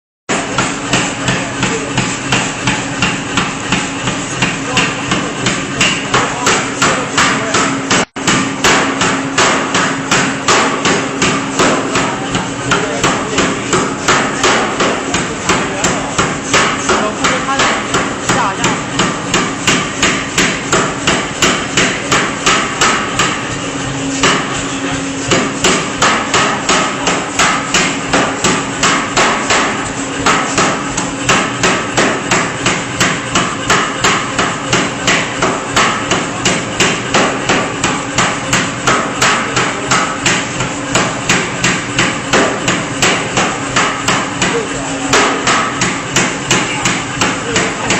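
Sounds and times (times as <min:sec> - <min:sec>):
air hammer striking: 0:00.3 - 0:47.9
steady hum: 0:00.3 - 0:47.9.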